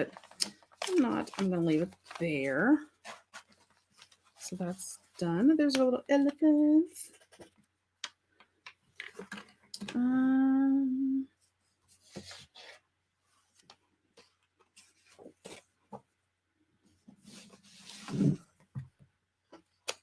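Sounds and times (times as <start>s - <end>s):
paper rustling: 0.0s - 8.2s, 11.9s - 12.8s, 13.4s - 16.1s
woman humming: 9.9s - 11.3s.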